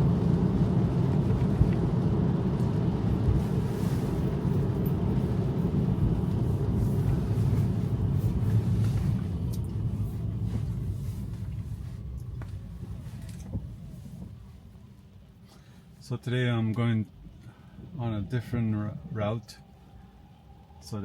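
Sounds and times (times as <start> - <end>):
tyre and road rumble: 0.0 - 14.9.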